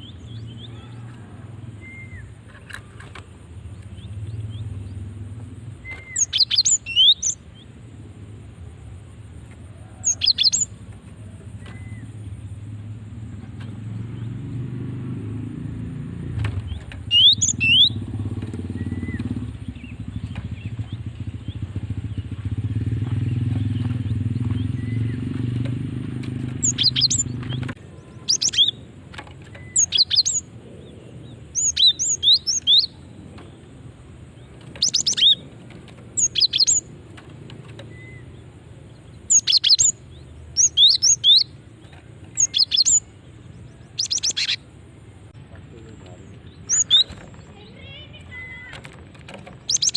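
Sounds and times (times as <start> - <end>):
bird rapid high chirps: 5.7 - 7.8, 10.0 - 10.8, 16.6 - 37.0, 37.7 - 44.8, 46.2 - 48.8, 49.4 - 49.9.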